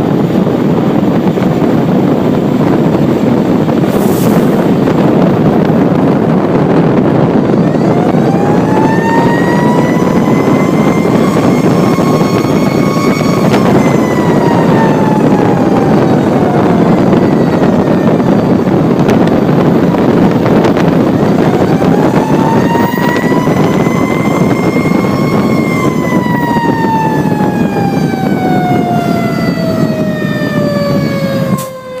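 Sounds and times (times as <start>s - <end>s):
loud vehicle noise: 0.0s - 32.0s
fire engine siren winding: 7.0s - 32.0s.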